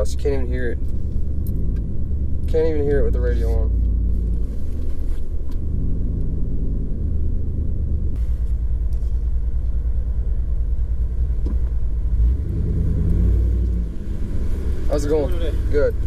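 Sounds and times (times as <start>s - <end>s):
truck engine rumble from inside cab: 0.0s - 16.0s.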